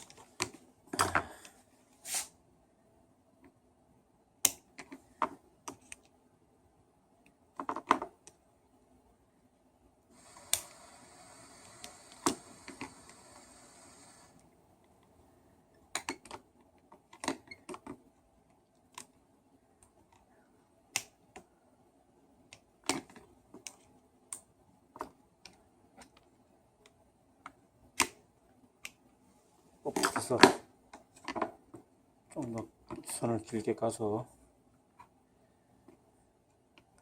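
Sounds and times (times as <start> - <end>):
soft hiss: 0.0 - 2.8, 9.0 - 15.9.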